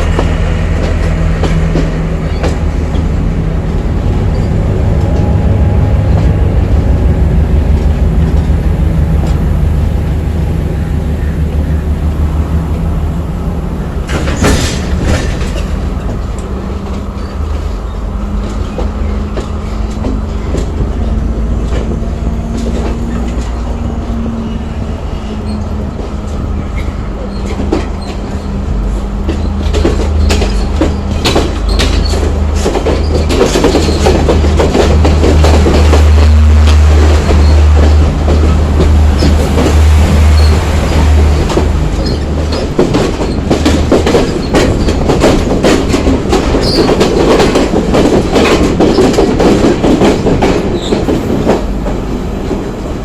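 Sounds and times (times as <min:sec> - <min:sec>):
train rumbling on rails: 0:00.0 - 0:53.0
wheels clicking over rail joints: 0:25.3 - 0:53.0.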